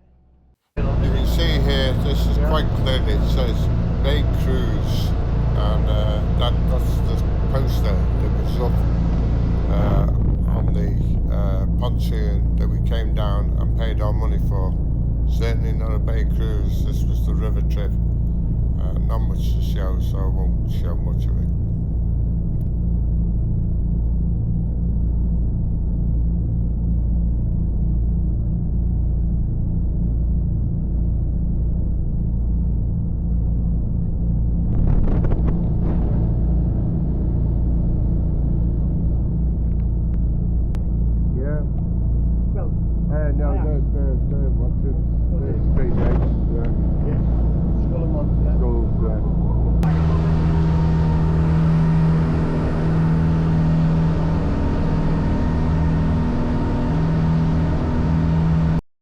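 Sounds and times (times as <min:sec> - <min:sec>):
boat engine humming: 0:00.8 - 0:22.8, 0:36.2 - 0:58.8.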